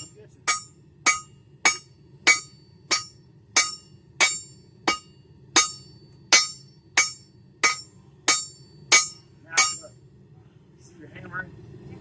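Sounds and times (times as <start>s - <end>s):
hammer striking metal on anvil: 0.0s - 10.0s.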